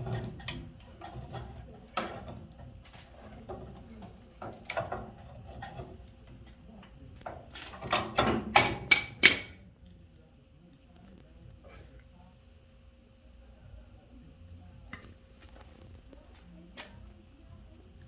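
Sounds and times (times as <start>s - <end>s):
tools and parts knocking: 3.4s - 5.9s, 7.3s - 9.6s
sharp metal clanks: 7.9s - 9.6s.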